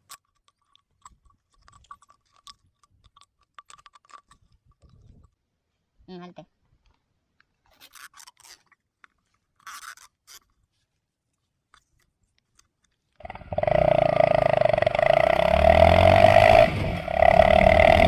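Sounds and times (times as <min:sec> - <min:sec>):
motorcycle engine running loudly: 0:13.2 - 0:18.0.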